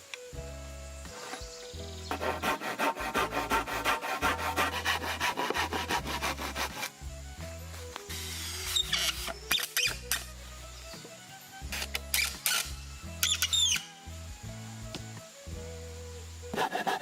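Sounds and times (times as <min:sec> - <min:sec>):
hand saw cutting wood: 0:02.1 - 0:07.0, 0:16.6 - 0:17.0.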